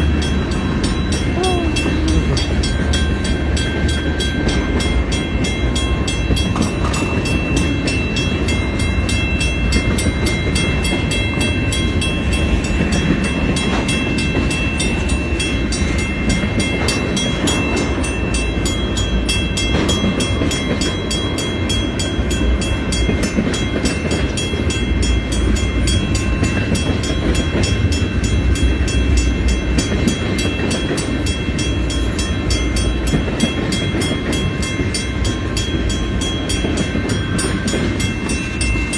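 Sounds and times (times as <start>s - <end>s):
train wheels rumbling on rails: 0.0s - 38.9s.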